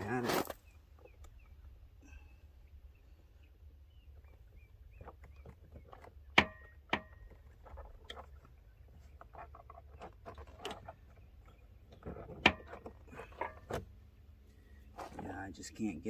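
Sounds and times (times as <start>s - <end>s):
handling rattles: 4.2s - 14.0s.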